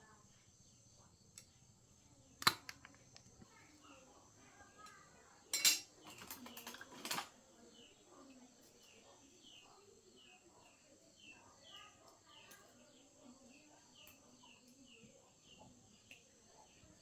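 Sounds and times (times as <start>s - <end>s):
metallic clinking and clattering: 5.5s - 7.3s.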